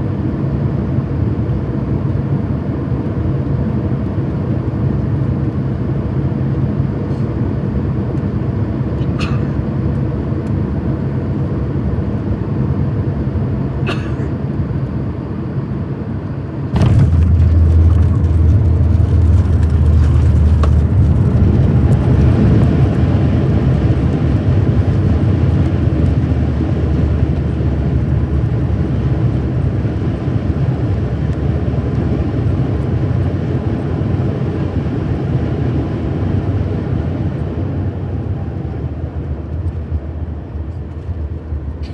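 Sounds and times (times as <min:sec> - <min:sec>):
airliner engine rumble: 0:00.0 - 0:41.9
reverse thrust roar: 0:16.7 - 0:28.2.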